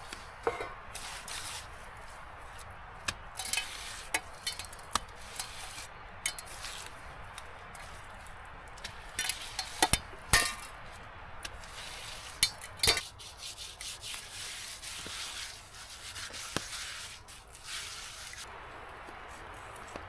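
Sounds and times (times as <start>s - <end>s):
rubbing and scraping: 0.0s - 2.7s, 3.4s - 7.0s, 10.8s - 18.5s.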